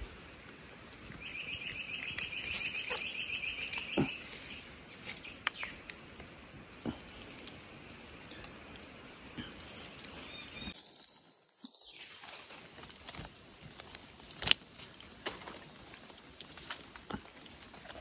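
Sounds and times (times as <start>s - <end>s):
bird trilling: 1.2s - 4.6s.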